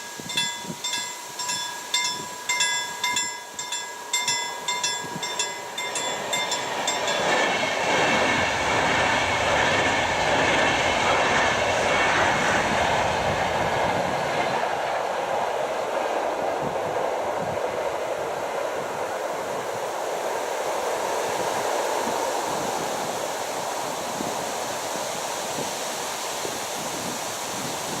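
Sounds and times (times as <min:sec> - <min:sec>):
level crossing bell ringing: 0:00.0 - 0:07.5
train wheels rushing on rails: 0:00.0 - 0:28.0.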